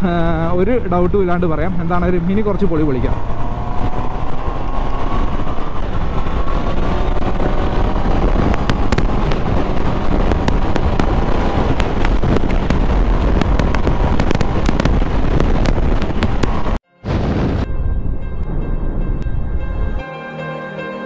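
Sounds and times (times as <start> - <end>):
wind rush: 0.2 - 20.0
motorcycle engine under throttle: 3.0 - 16.8
sharp crackling clicks: 5.5 - 16.8.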